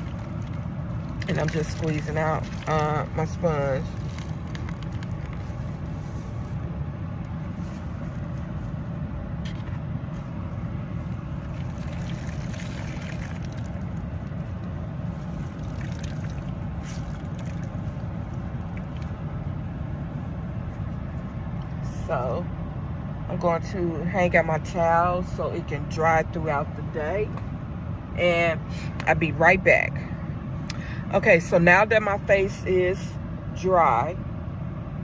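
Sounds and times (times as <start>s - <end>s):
steady low rumble: 0.0s - 35.0s
water splashing and dripping: 11.5s - 14.0s, 15.3s - 17.8s
sponge and towel squeezed out: 15.2s - 18.0s.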